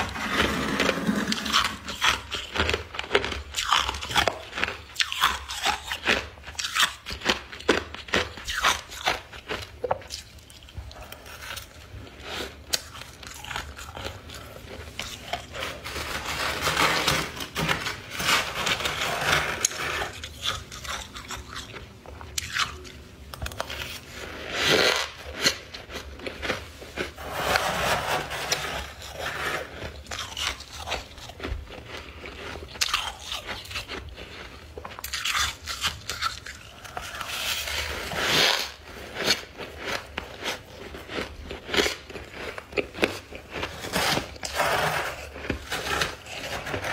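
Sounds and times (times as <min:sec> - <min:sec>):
ice scraping against ice: 0:00.0 - 0:02.6, 0:15.0 - 0:20.6, 0:27.1 - 0:30.6, 0:43.0 - 0:46.9
ice crunching while chewed: 0:00.0 - 0:46.9.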